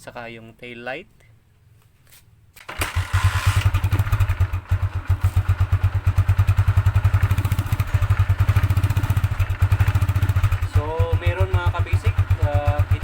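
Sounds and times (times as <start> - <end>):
motorcycle engine idling: 2.7 - 13.0.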